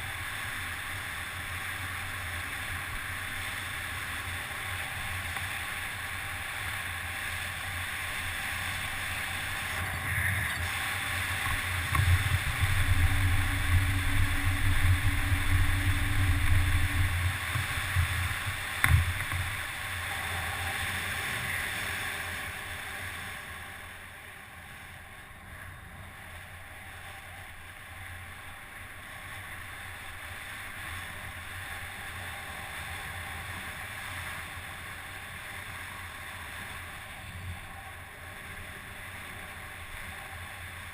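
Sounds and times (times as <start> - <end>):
wind rushing over microphone: 3.9 - 24.6
low rumble: 9.6 - 21.3.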